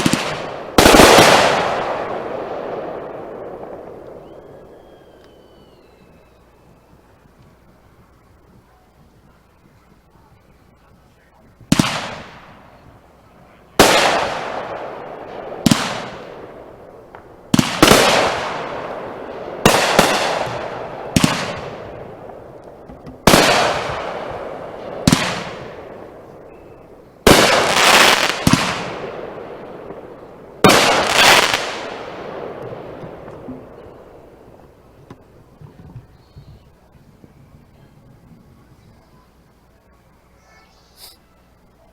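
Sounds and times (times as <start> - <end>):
fireworks bangs: 0.0 - 8.0, 11.6 - 36.9.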